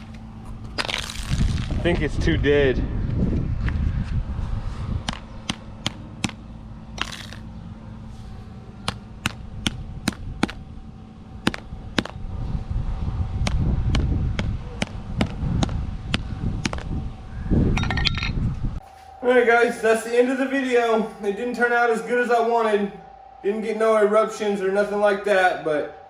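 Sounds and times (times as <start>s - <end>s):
electrical arcing snaps: 0.0s - 2.1s
crackling buzz: 0.0s - 26.0s
microwave oven hum: 2.8s - 17.8s.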